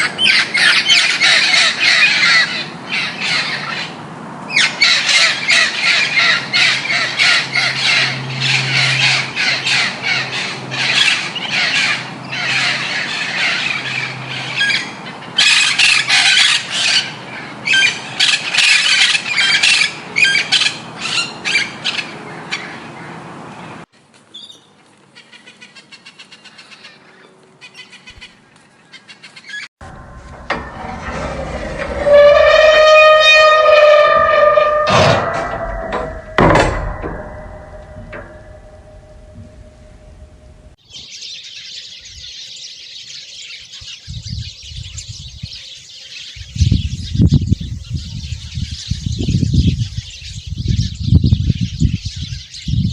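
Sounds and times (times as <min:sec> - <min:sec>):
birds squawking: 0:00.0 - 0:23.1
loud animal call: 0:29.9 - 0:39.6.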